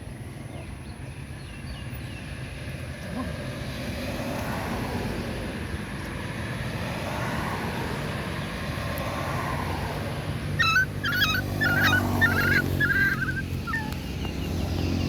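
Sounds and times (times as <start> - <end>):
puppies whimpering and yipping: 10.6 - 14.6.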